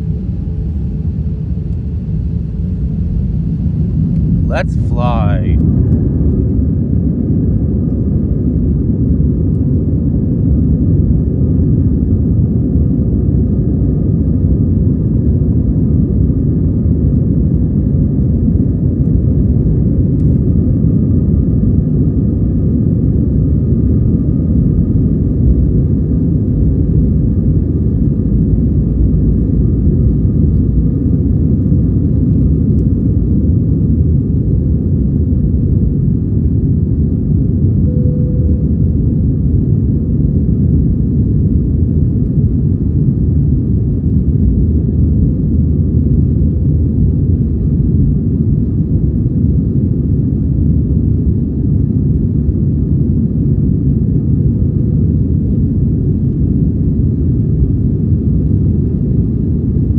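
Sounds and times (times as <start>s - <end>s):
faint whining tones: 0.0s - 4.9s
jet engines rumbling: 0.0s - 5.8s.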